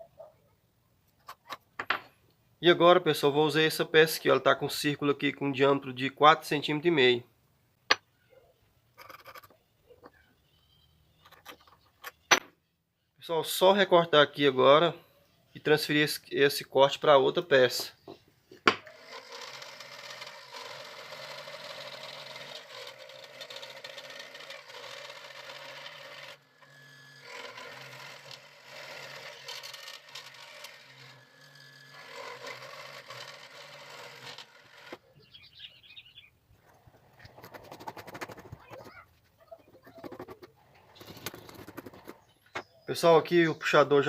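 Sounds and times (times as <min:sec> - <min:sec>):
small electric saw cutting wood: 0:18.7 - 0:35.1.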